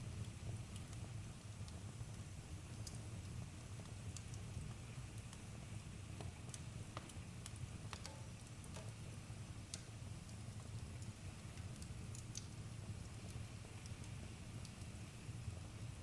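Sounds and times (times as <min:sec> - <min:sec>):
low rumble of flames: 0:00.0 - 0:16.0
burning wood popping and snapping: 0:02.7 - 0:09.0.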